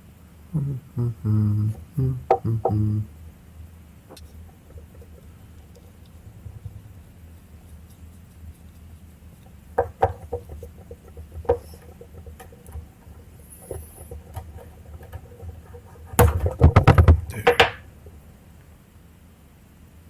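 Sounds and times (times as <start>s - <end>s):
small parts clicking and tapping: 4.1s - 17.8s.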